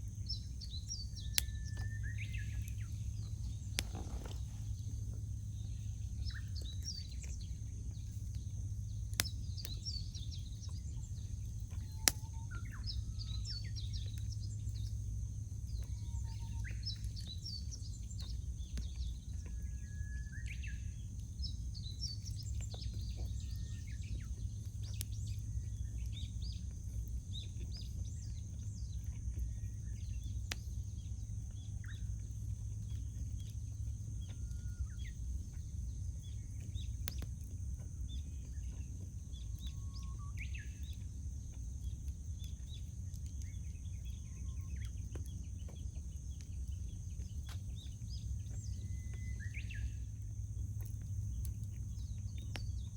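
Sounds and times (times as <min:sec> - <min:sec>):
low rumble: 0:00.0 - 0:19.8
sharp pops from fire: 0:00.0 - 0:52.9
wood fire crackling: 0:00.0 - 0:52.9.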